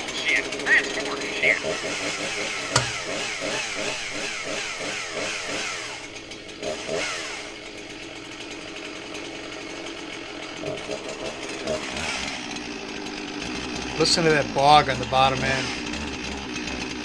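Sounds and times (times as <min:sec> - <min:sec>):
chainsaw engine running: 0:00.0 - 0:17.0.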